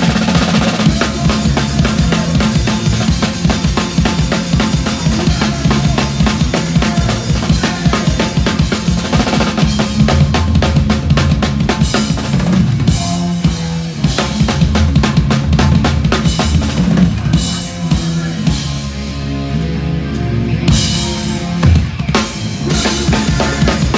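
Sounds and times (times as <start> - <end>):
fast drum kit pattern: 0.0 - 23.9
punk band playing live: 0.0 - 23.9.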